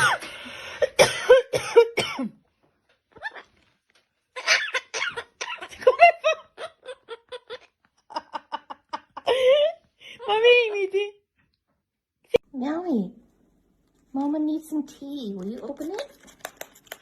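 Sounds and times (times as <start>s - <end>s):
person coughing: 0.0s - 2.4s, 4.5s - 6.0s.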